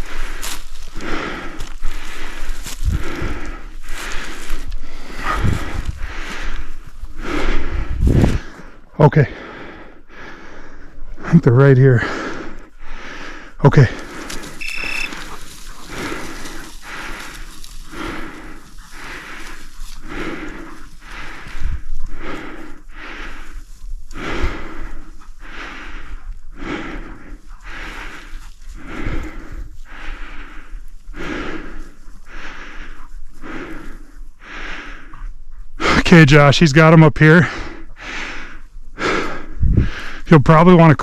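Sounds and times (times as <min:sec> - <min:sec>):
person breathing hard: 0:00.0 - 0:36.5, 0:37.3 - 0:40.3
short high beep: 0:14.6 - 0:15.2.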